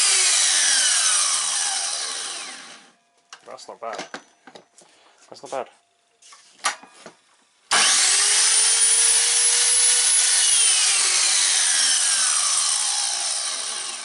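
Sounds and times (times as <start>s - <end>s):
mitre saw whining: 0.0s - 3.0s, 7.7s - 14.0s.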